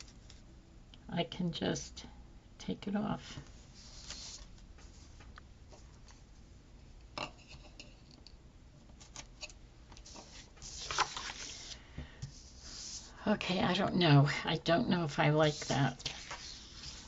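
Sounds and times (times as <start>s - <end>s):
paper rustling and crinkling: 3.8s - 5.0s, 10.0s - 11.8s, 15.4s - 17.0s.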